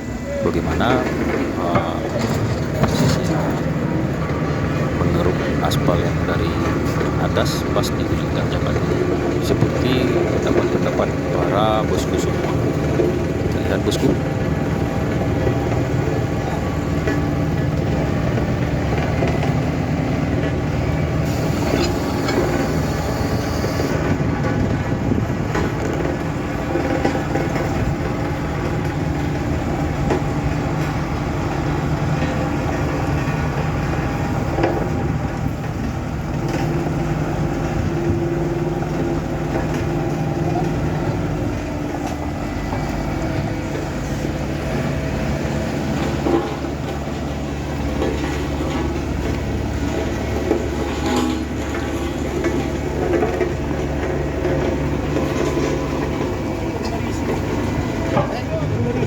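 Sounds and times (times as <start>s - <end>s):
diesel engine under load: 0.0s - 59.0s
grinding and knocks: 45.9s - 59.0s.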